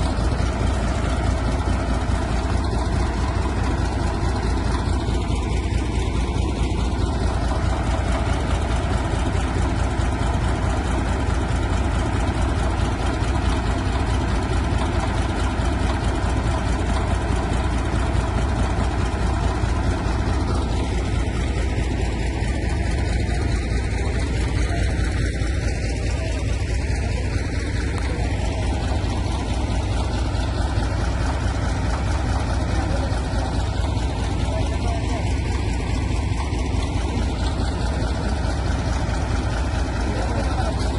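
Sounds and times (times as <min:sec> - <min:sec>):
diesel engine running steadily: 0:00.0 - 0:40.9.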